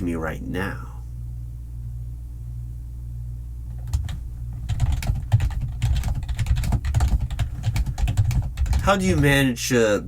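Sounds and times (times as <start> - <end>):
steady low hum: 0.0 - 10.0
keyboard typing clicks: 3.8 - 8.8.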